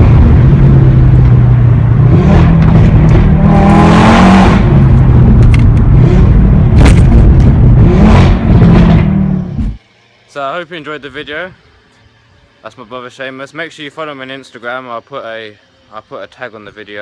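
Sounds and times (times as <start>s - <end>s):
exhaust pops and crackles: 0.0s - 3.6s, 4.4s - 9.8s
car engine accelerating hard: 0.0s - 9.8s.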